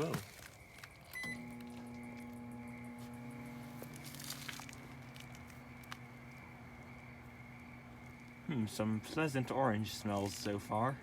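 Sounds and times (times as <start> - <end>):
microwave oven humming: 1.1 - 9.4.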